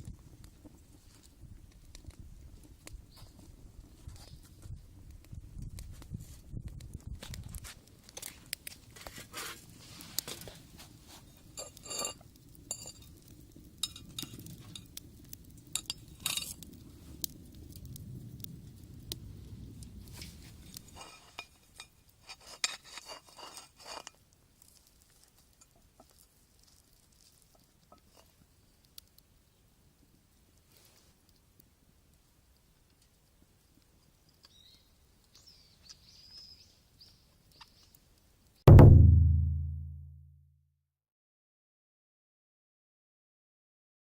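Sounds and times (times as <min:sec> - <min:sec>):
low rumble: 0:38.7 - 0:40.3.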